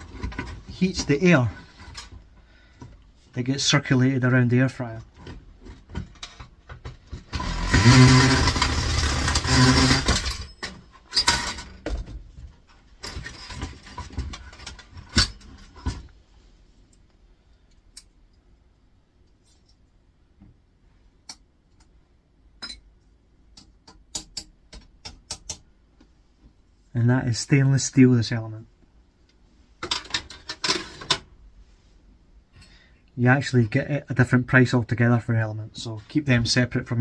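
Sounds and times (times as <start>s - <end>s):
mechanical whirring and rattling: 7.1s - 10.5s.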